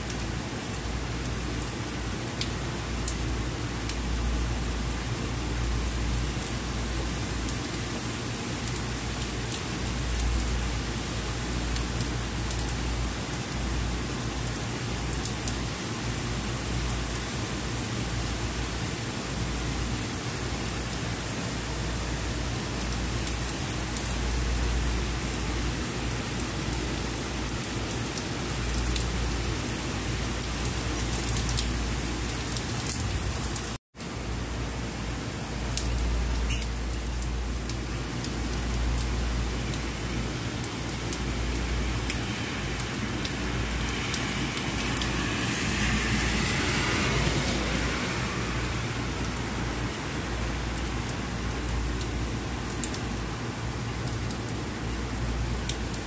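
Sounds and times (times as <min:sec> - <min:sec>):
heavy rain on street: 0:00.0 - 0:56.0
tyres hissing on wet road: 0:39.4 - 0:55.6.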